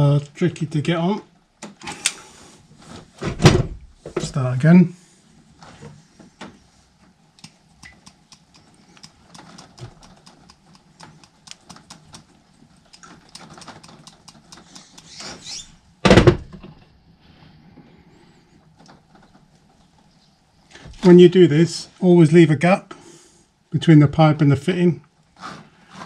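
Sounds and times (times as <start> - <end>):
loud knock: 16.0 - 16.6.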